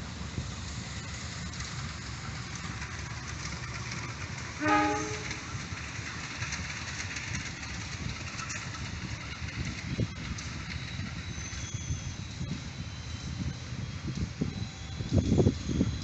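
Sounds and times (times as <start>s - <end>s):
train rumbling past: 0.0s - 16.0s
train horn blast: 4.6s - 5.5s.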